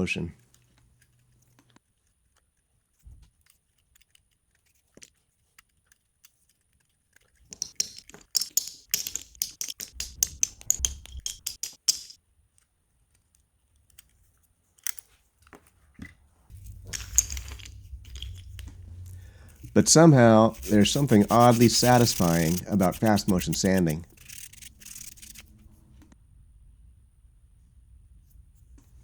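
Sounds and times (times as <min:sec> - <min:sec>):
hand tool cutting and scraping wood: 0:07.3 - 0:12.2, 0:16.5 - 0:25.7.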